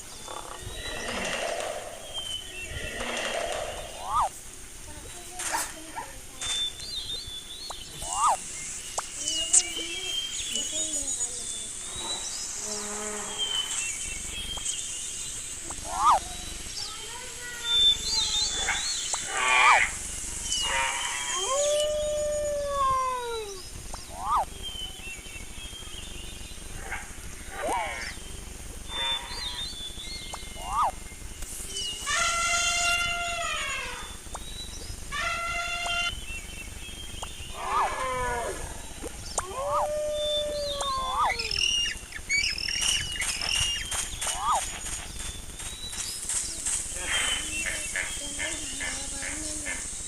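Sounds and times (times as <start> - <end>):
animal calls: 0.0 - 4.4, 7.9 - 8.4, 15.6 - 16.4, 17.1 - 24.6, 26.7 - 28.2, 28.8 - 29.8, 30.4 - 31.0, 31.9 - 34.4, 35.1 - 36.2, 37.2 - 45.0
high quick chirps: 2.1 - 4.4, 7.6 - 11.0, 13.5 - 21.9, 22.7 - 25.0, 29.0 - 32.9
dog howling: 21.3 - 23.6, 39.4 - 41.6
quick clicks: 42.4 - 47.0.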